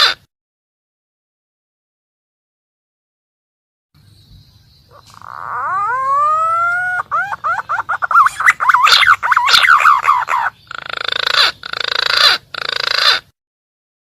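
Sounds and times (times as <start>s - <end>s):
fluting whistled bird call: 4.9s - 10.5s.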